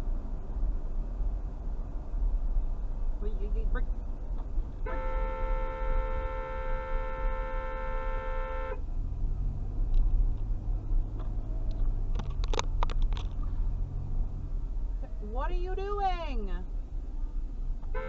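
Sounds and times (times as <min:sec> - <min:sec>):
low vehicle rumble: 0:00.0 - 0:18.0
car horn: 0:04.8 - 0:08.9.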